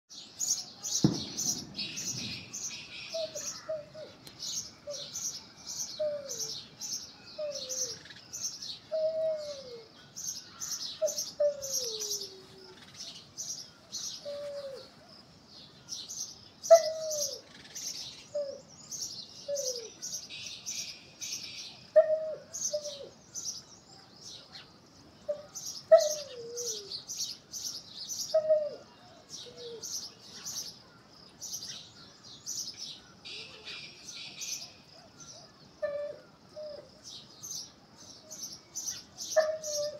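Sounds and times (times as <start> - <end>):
low falling bird calls: 0.1 - 39.9
high bird chirps: 0.5 - 8.9.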